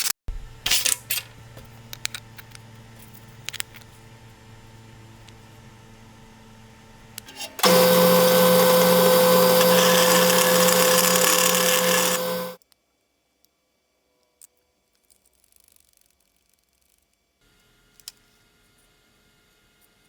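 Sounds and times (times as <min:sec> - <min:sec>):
power tool motor humming: 0:07.6 - 0:12.6.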